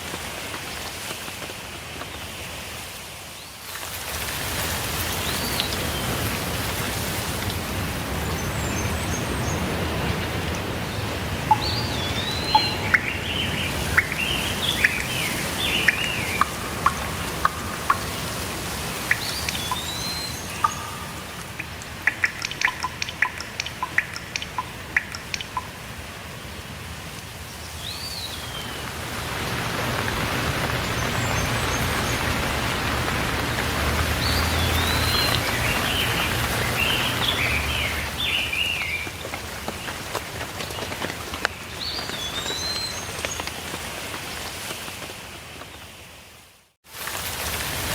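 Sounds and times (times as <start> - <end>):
steady rainfall: 0.0 - 47.9
birds chirping: 8.1 - 25.8, 27.7 - 39.4
short sharp drips: 11.4 - 25.9.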